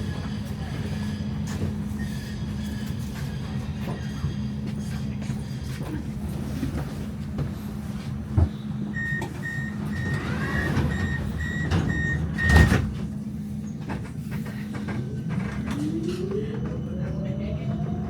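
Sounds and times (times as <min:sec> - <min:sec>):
tram hum: 0:00.0 - 0:18.0
tram door warning beeps: 0:08.4 - 0:13.1
doors shutting with a thump: 0:09.2 - 0:13.1.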